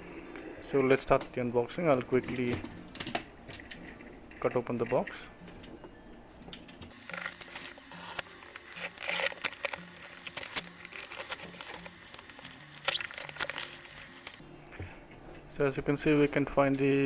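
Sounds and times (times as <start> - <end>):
tape and packaging tearing: 6.9 - 14.4.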